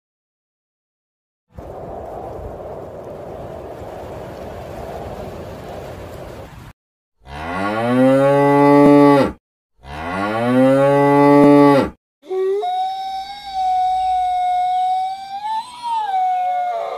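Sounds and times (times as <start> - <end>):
cow mooing: 7.2 - 12.6.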